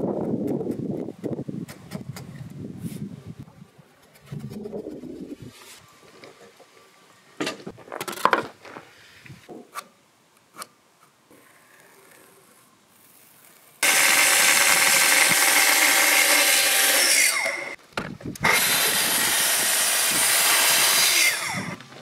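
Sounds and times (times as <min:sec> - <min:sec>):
track saw cutting wood: 0:13.8 - 0:17.8, 0:18.4 - 0:21.9.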